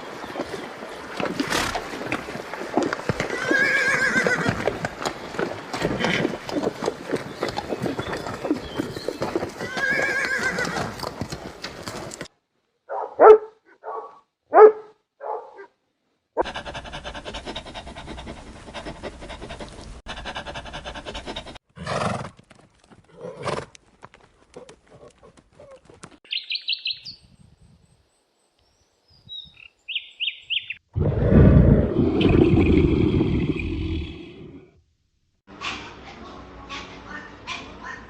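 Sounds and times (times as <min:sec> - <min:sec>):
high bird chirps: 0:26.3 - 0:27.3, 0:29.1 - 0:30.8.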